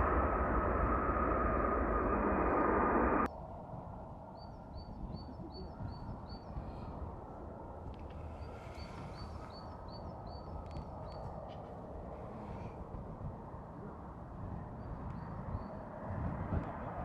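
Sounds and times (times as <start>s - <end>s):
low background rumble: 0.0s - 3.3s.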